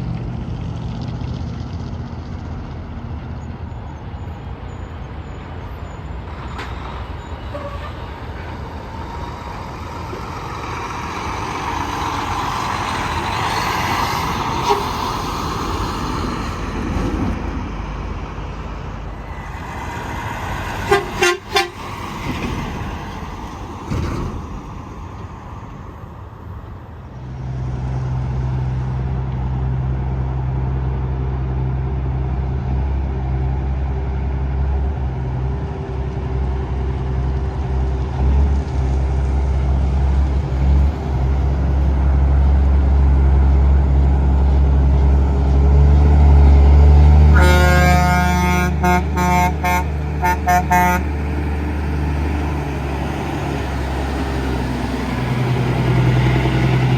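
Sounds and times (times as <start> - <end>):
truck diesel engine running: 0.0 - 27.4, 28.3 - 56.9
truck air horn: 7.5 - 8.1, 14.6 - 15.2, 20.8 - 21.9, 47.3 - 51.2.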